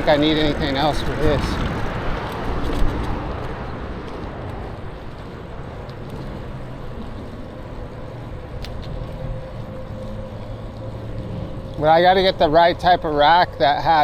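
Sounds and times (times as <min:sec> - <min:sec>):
tyre rumble on pavement: 0:00.0 - 0:12.4
wind rush: 0:00.0 - 0:12.4
faint ticks: 0:08.5 - 0:11.8.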